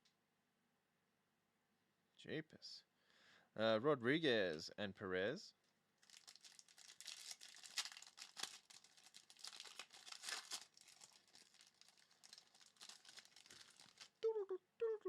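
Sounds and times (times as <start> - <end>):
wrapper crinkling and tearing: 6.0 - 14.2.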